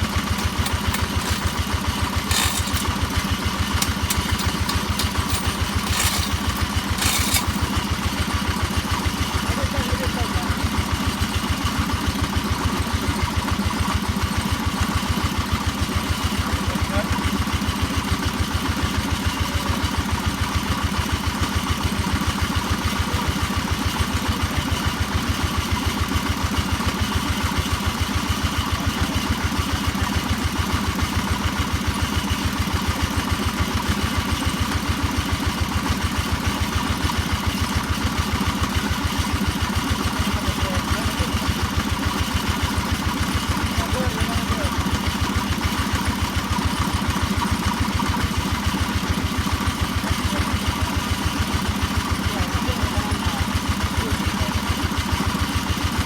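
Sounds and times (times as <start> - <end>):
hammer drill running: 0.0 - 8.3.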